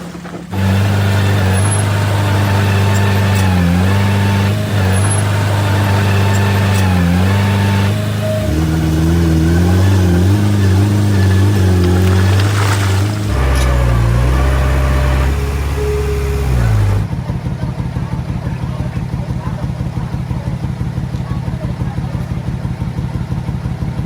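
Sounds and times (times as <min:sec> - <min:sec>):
heavy diesel engine under load: 0:00.0 - 0:24.0.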